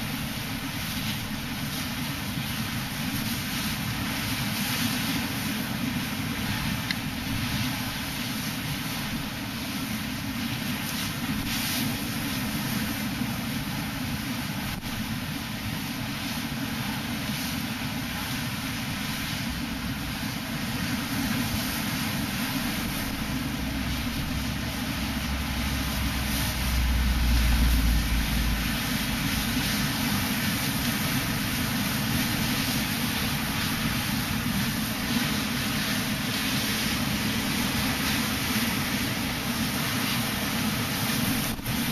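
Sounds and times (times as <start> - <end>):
low rumble: 22.9 - 29.9.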